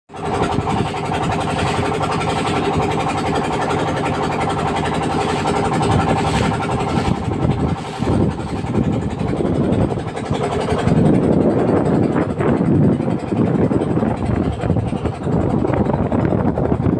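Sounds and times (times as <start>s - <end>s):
boat engine running: 0.1s - 16.9s
rough uneven rushing noise: 0.2s - 16.3s.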